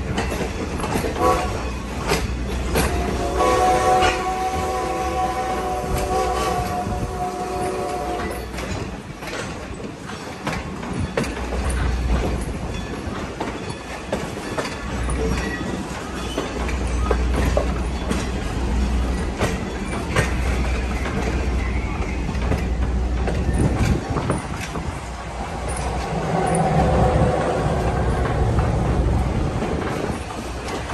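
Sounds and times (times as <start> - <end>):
train car rolling rumble: 0.0 - 30.9
wheels clacking on rails: 0.0 - 30.9
steam whistle: 1.2 - 1.6, 2.9 - 8.4.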